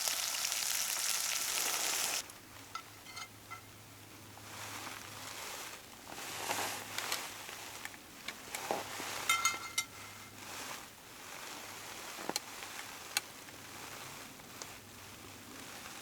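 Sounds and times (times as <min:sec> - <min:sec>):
ringing metal clink: 0:02.8 - 0:03.7, 0:09.3 - 0:10.0.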